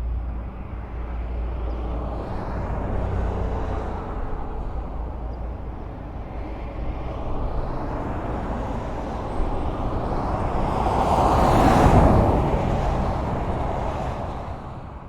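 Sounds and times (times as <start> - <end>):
highway traffic rumble: 0.0 - 15.0
vehicle passing close: 8.3 - 15.0.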